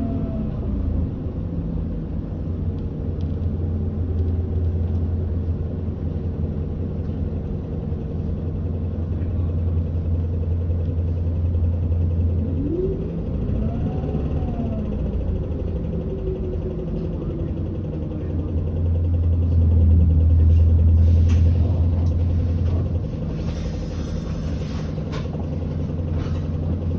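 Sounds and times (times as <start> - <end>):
bus diesel engine running: 0.0 - 26.9
air brakes hissing: 20.9 - 26.6.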